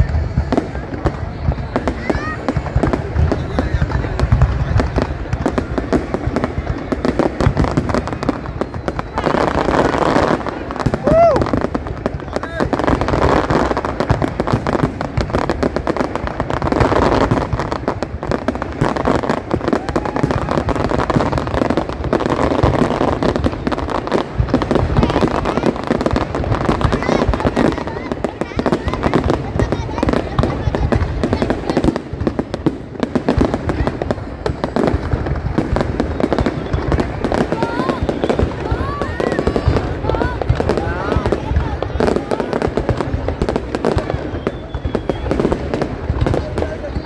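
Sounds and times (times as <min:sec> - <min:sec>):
fireworks bursting and crackling: 0:00.0 - 0:47.0.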